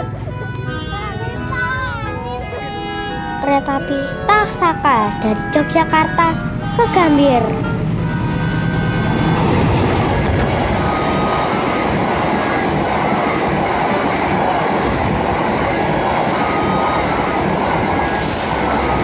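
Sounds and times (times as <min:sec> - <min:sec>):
diesel locomotive engine: 0:00.0 - 0:19.0
train wheels rattling on rails: 0:06.4 - 0:19.0.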